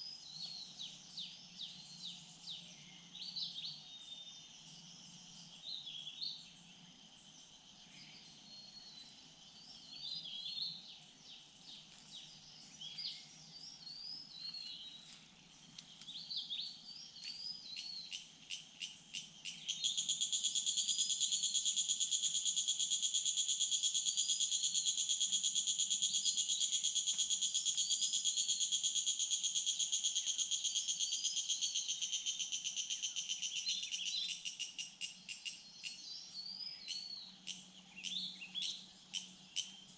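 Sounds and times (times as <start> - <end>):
small birds chirping: 0.0 - 39.9
high pulsing insect buzz: 18.4 - 35.4.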